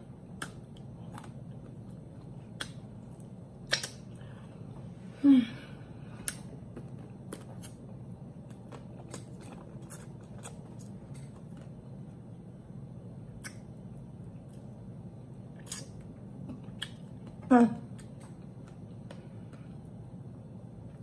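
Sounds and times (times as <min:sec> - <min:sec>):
low steady hum: 0:00.0 - 0:21.0
chewing and lip smacking: 0:00.2 - 0:04.4, 0:06.2 - 0:11.8, 0:15.6 - 0:19.7.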